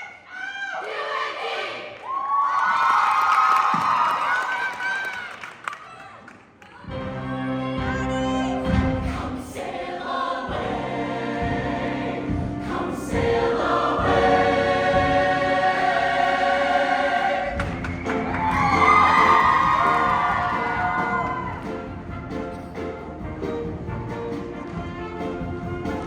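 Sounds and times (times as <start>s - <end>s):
choir singing in harmony: 0.8s - 1.9s, 7.0s - 22.3s
band accompaniment: 6.9s - 26.0s.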